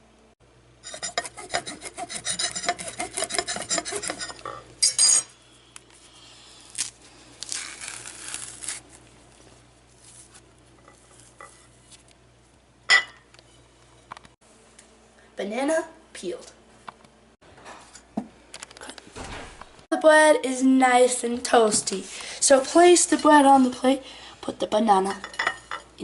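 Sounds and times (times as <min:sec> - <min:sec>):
banana peel tearing: 0:06.6 - 0:10.4.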